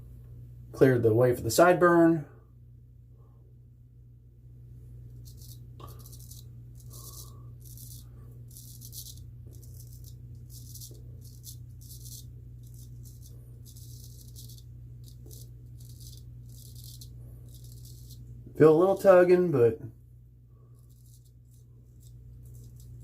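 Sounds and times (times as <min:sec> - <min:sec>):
razor scraping stubble: 0:05.1 - 0:19.5, 0:20.7 - 0:23.0.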